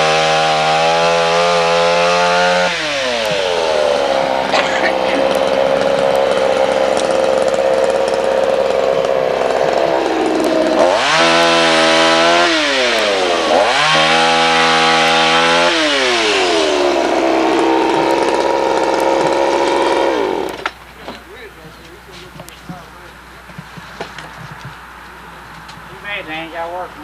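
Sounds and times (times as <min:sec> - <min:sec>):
chainsaw running and revving: 0:00.0 - 0:20.9.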